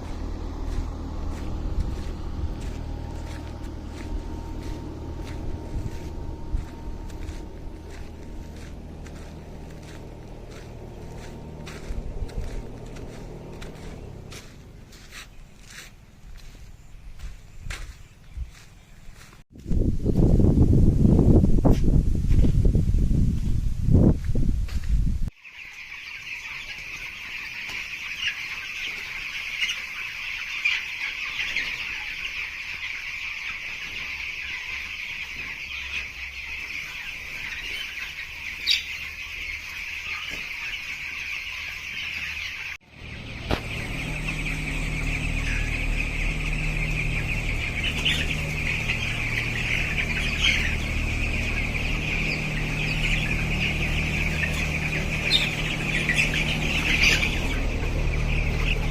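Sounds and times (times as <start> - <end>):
low steady hum: 0.0 - 18.6, 42.9 - 58.9
chickens calling: 0.0 - 19.4, 25.3 - 58.9.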